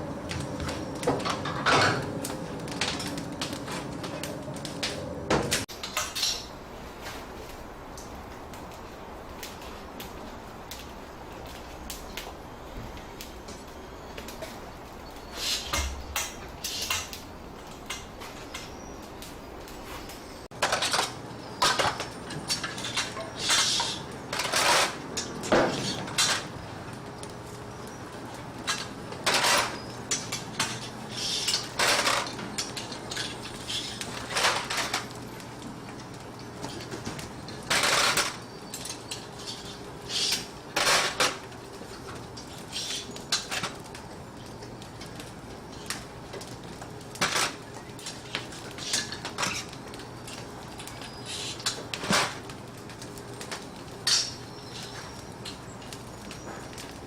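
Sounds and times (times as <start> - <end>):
metal kitchenware clattering: 1.3 - 2.1.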